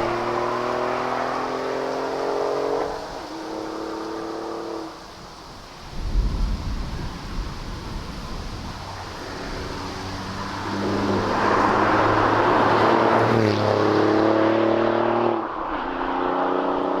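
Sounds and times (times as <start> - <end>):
car exhaust accelerating: 0.0 - 5.1, 8.8 - 17.0.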